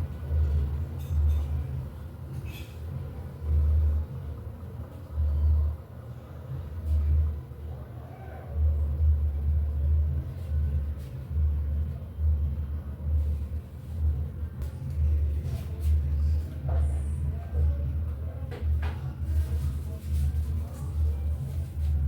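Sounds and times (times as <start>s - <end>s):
washing machine rumbling: 0.0s - 22.0s.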